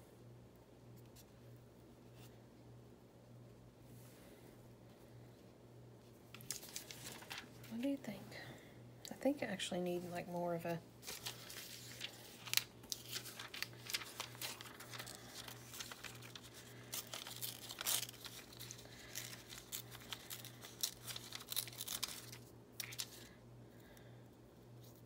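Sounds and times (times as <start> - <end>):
paper tearing and crinkling: 6.3 - 7.7, 11.0 - 23.3.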